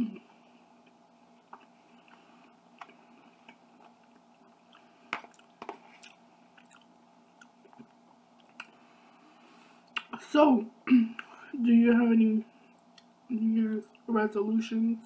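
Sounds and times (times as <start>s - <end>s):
faint chewing: 0.7s - 8.9s.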